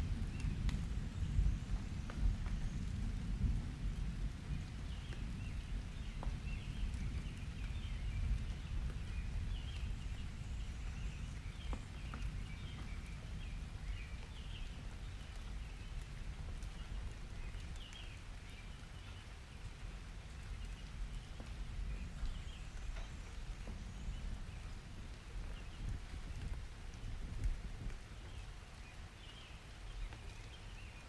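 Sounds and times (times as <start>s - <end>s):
low rumble of thunder: 0.0s - 31.0s
drip-like ticks: 11.4s - 30.8s.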